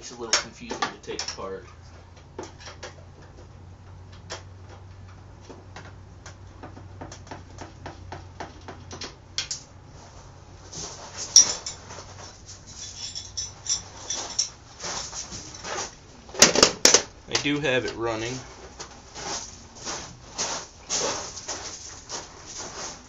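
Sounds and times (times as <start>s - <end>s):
metal tools and bolts clinking: 0.3s - 1.5s, 11.1s - 15.9s
metal parts scraping and clanking: 9.5s - 17.6s.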